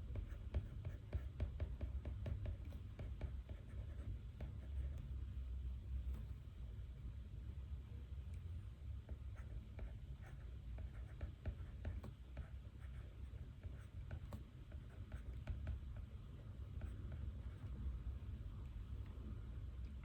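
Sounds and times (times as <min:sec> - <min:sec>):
pen scratching on paper: 0:00.1 - 0:05.0, 0:09.3 - 0:16.1.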